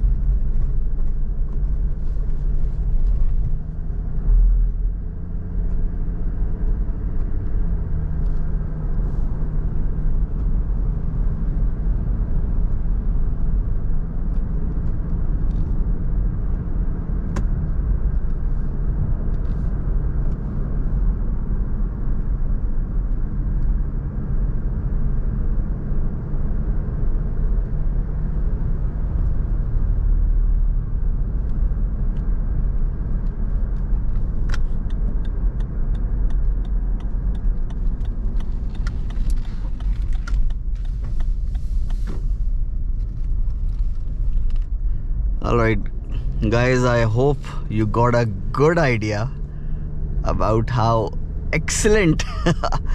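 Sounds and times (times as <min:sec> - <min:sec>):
car engine and road rumble: 0:00.0 - 0:52.9.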